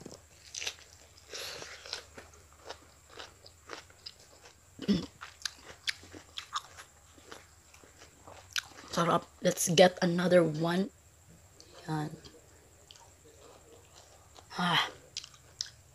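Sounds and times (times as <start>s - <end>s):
person chewing crisp lettuce: 0.0s - 9.0s, 12.9s - 15.8s.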